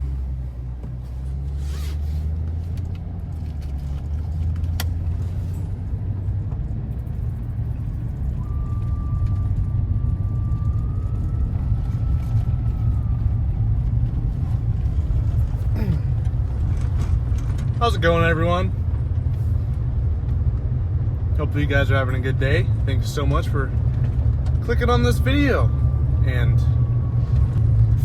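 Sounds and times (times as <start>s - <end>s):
truck rumbling on gravel: 14.0s - 20.8s.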